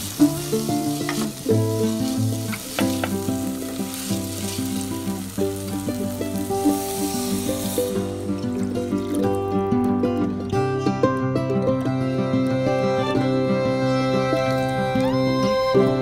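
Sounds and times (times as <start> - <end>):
vegetables sizzling in oil: 0.0 - 10.4
background music: 0.0 - 16.0.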